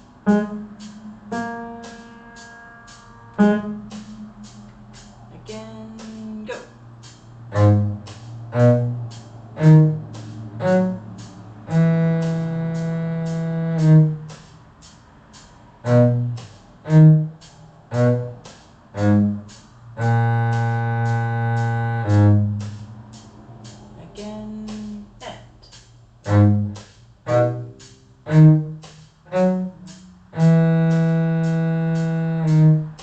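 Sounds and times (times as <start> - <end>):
cello playing slow phrase: 0.0 - 23.8, 26.2 - 33.0
fast steady ticking: 0.0 - 33.0.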